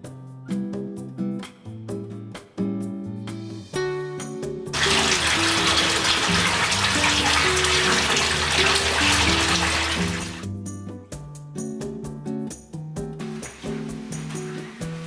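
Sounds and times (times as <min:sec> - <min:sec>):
soft background music: 0:00.0 - 0:15.0
water pouring into a bath: 0:04.7 - 0:10.5, 0:13.2 - 0:15.0.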